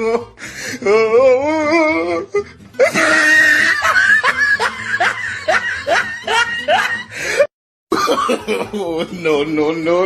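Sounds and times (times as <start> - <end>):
harsh cry-like sound: 1.0 - 3.9.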